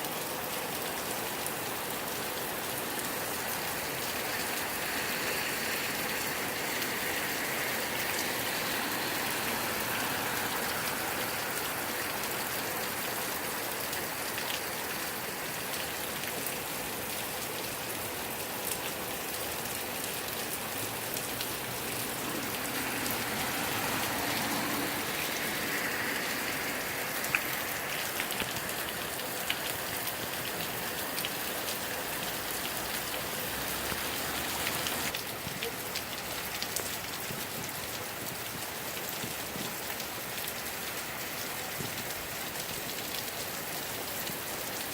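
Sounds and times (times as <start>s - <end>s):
heavy rain hissing: 0.7s - 44.9s
raindrop ticks: 27.2s - 44.9s.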